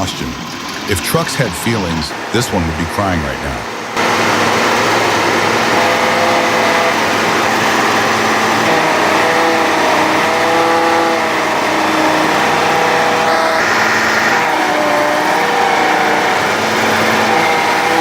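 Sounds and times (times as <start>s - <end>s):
heavy machine engine running: 0.0s - 18.0s.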